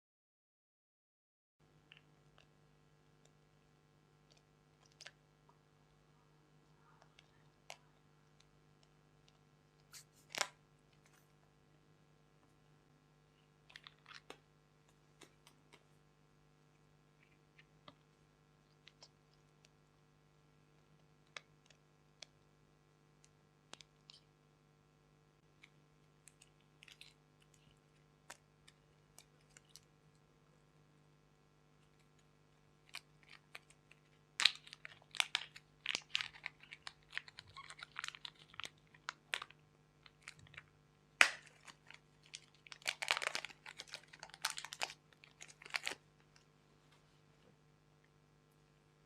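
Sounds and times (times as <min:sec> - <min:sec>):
slime crackling and popping: 0:32.8 - 0:46.0.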